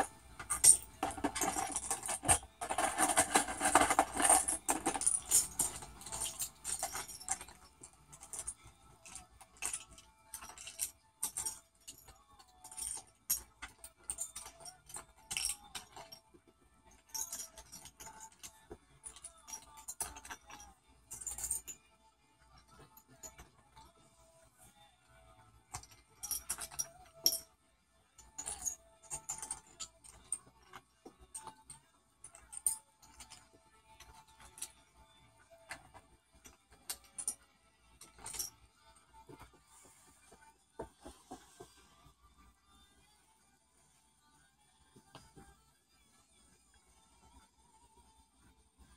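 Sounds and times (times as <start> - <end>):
cockatoo clicking and rattling a toy: 0.0 - 21.8.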